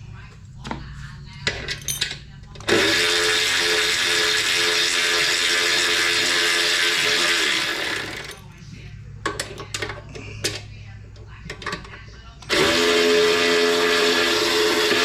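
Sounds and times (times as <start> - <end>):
power tool motor running: 2.7 - 8.3, 12.5 - 15.0.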